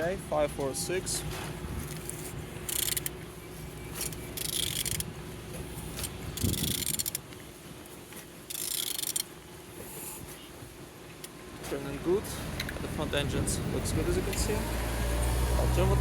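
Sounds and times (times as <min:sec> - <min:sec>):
mechanical turning sounds: 0:02.1 - 0:03.2, 0:04.0 - 0:05.1, 0:06.0 - 0:07.2, 0:08.5 - 0:09.3
ratchet wrench clicking: 0:02.7 - 0:03.2, 0:04.4 - 0:05.1, 0:06.4 - 0:07.2, 0:08.5 - 0:09.3.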